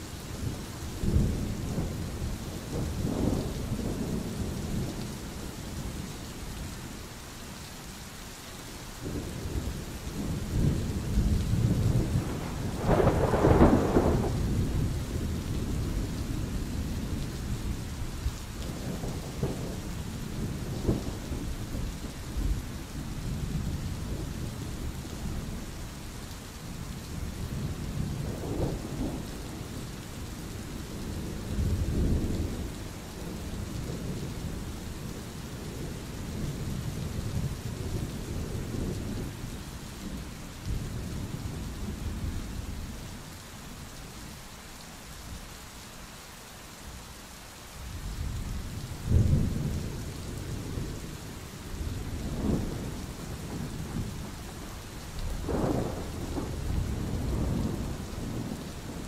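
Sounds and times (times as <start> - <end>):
steady rain: 0.0 - 59.0
rolling thunder: 9.0 - 17.7, 48.0 - 59.0.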